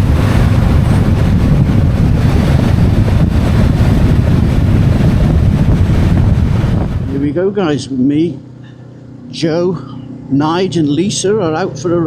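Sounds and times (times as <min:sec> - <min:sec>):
loud wind rush on microphone: 0:00.0 - 0:08.0
motorcycle engine drone: 0:00.0 - 0:12.0.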